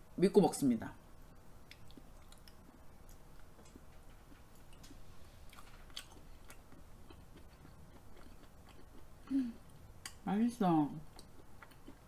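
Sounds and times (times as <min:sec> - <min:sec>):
chewing soft food: 0:01.6 - 0:10.2, 0:11.0 - 0:12.0
wet mouth clicks: 0:01.7 - 0:04.9.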